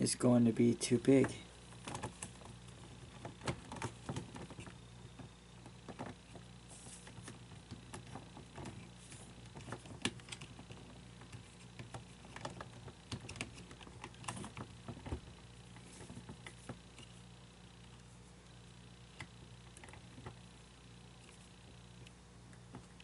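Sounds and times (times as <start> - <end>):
steady low hum: 0.0 - 23.0
plastic parts clicking and tapping: 1.1 - 6.5, 7.1 - 17.2.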